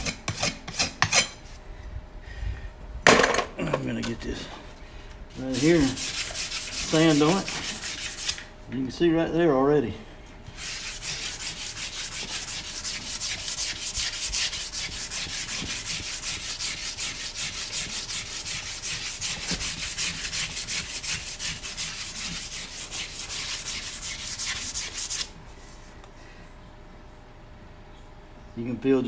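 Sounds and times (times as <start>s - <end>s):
rasp sanding hoof: 0.0s - 1.5s, 5.3s - 8.5s, 10.5s - 25.4s.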